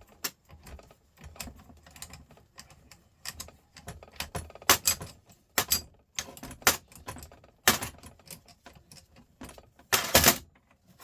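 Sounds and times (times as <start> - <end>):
metal parts clinking and knocking: 3.3 - 10.4.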